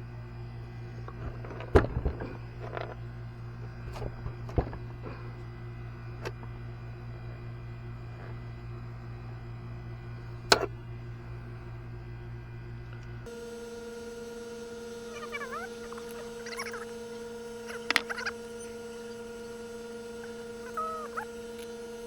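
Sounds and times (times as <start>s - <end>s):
steady low hum: 0.0s - 22.0s
hard objects clicking and knocking: 1.1s - 3.0s, 17.8s - 18.2s.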